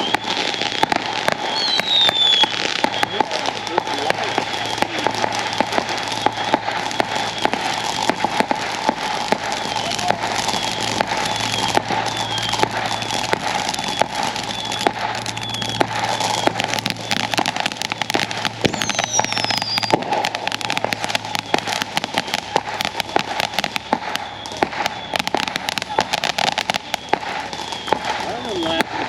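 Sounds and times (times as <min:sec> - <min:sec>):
long falling whistle: 0:00.0 - 0:00.8, 0:01.5 - 0:03.4, 0:09.6 - 0:13.2, 0:18.7 - 0:20.0
fireworks crackling and popping: 0:00.0 - 0:29.0
short firework whistles: 0:00.0 - 0:29.0.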